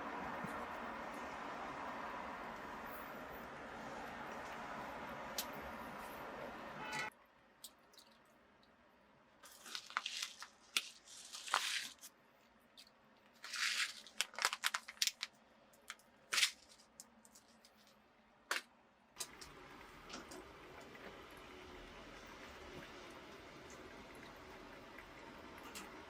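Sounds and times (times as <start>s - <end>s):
food packet crinkling and rustling: 9.4s - 18.0s.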